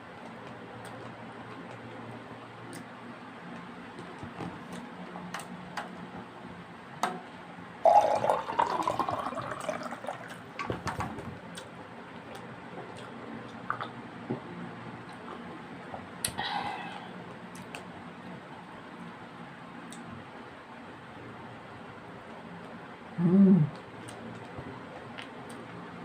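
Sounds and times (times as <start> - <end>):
drink pouring into a glass: 7.8 - 10.4.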